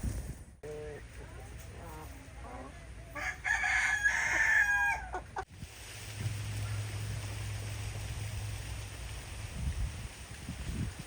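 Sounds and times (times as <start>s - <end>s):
rooster crowing: 3.2s - 5.2s.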